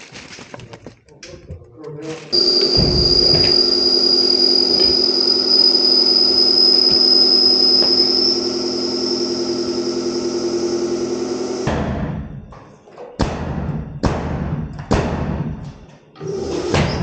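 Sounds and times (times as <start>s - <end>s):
motor running with high whine: 2.4s - 11.8s.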